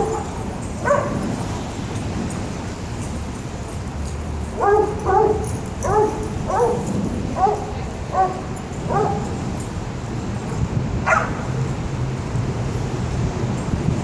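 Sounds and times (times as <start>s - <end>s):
dog barking: 0.0s - 1.2s, 4.6s - 9.5s, 11.0s - 11.6s.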